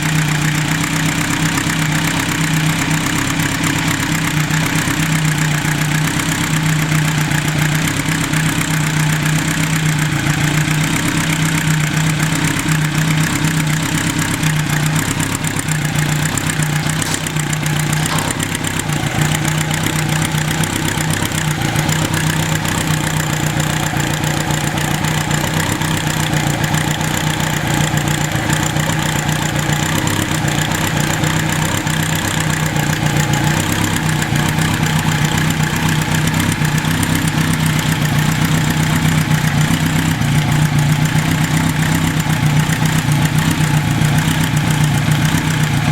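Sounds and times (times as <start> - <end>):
motorcycle engine idling: 0.0 - 45.9
carburettor clacking: 15.1 - 36.5.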